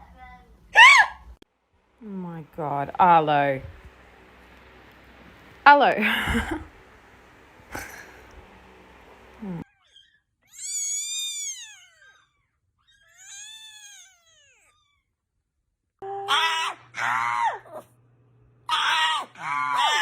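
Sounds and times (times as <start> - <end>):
low hum: 1.7 - 9.6.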